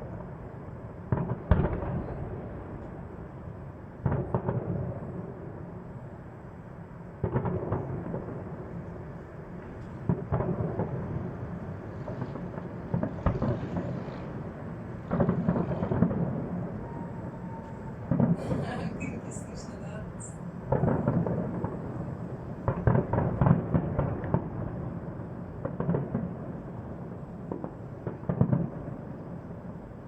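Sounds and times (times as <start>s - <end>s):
fireworks booming: 0.0s - 5.9s, 7.1s - 30.0s
fireworks crackling: 7.2s - 30.0s.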